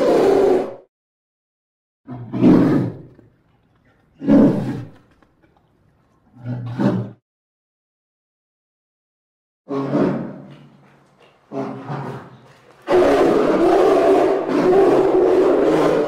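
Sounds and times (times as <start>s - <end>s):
bear roaring: 0.0s - 0.9s, 2.1s - 3.2s, 4.2s - 5.1s, 6.3s - 7.2s, 9.7s - 16.0s.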